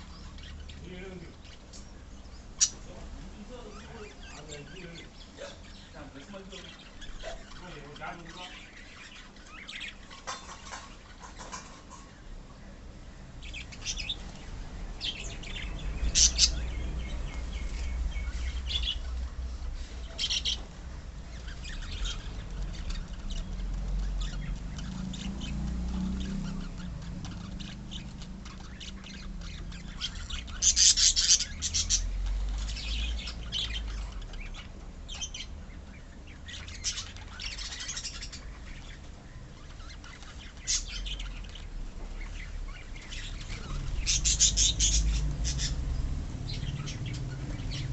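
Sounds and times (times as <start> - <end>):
lovebirds chirping and squawking: 0.0 - 47.9
low steady rumble: 12.2 - 47.9.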